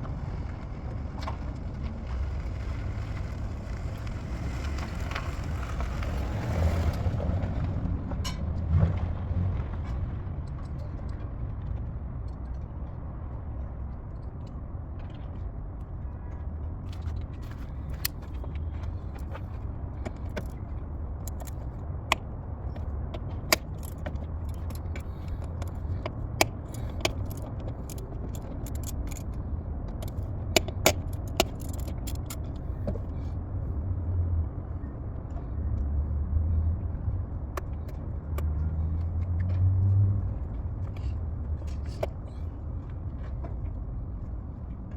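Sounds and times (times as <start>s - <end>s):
steady low rumble: 0.0s - 39.2s
hand tools clinking on metal: 21.3s - 21.6s, 23.5s - 29.3s, 30.0s - 32.4s.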